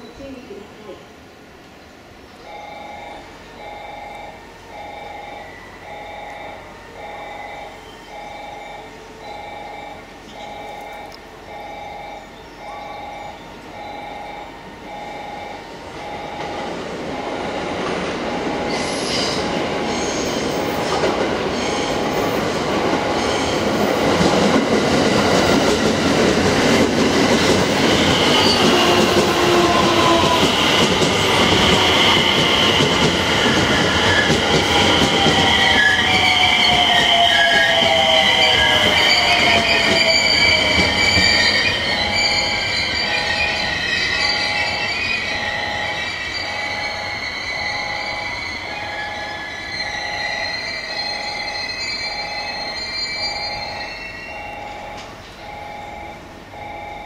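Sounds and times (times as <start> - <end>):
electric train slowing to a stop: 2.3 - 57.0
train wheels clattering and squealing: 16.2 - 55.5.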